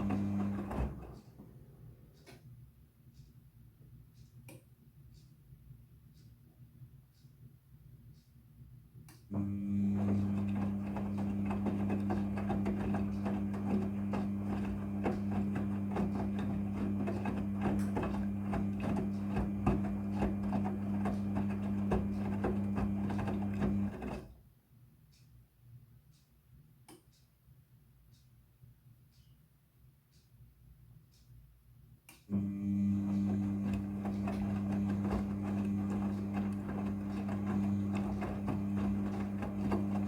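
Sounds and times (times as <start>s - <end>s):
washing machine hum: 0.0s - 2.3s, 9.3s - 24.4s, 32.3s - 40.0s
rapid irregular clicking: 10.0s - 24.3s, 33.0s - 40.0s.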